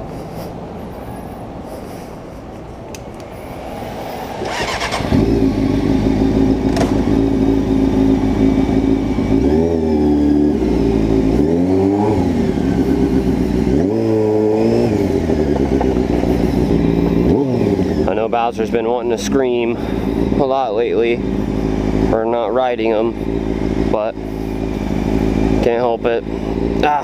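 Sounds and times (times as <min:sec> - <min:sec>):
motorcycle engine idling: 0:00.0 - 0:27.0
motorcycle throttle blips: 0:02.9 - 0:27.0
motorcycle starter cranking: 0:04.3 - 0:05.8.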